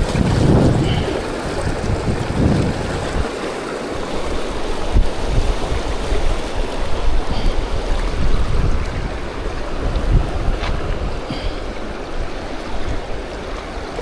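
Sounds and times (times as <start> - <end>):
river rapids rushing: 0.0 - 9.9
wind buffeting microphone: 0.0 - 14.0.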